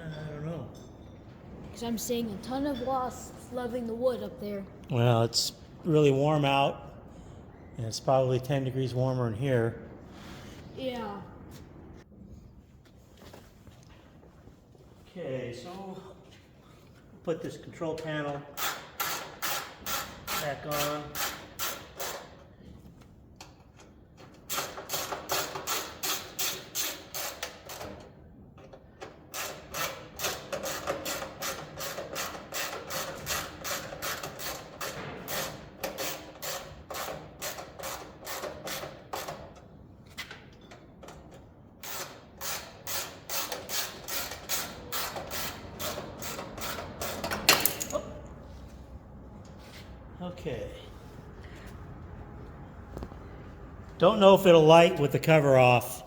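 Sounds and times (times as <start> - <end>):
hand ratchet clicking: 18.6 - 22.4, 24.5 - 28.1, 29.2 - 39.6.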